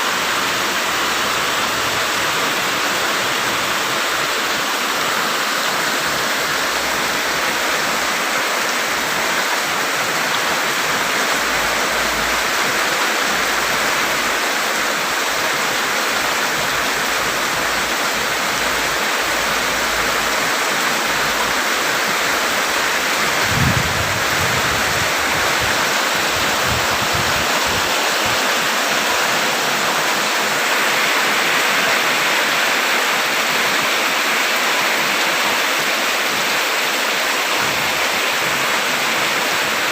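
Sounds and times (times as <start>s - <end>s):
heavy rain: 0.0s - 39.9s
low thump: 23.4s - 24.6s.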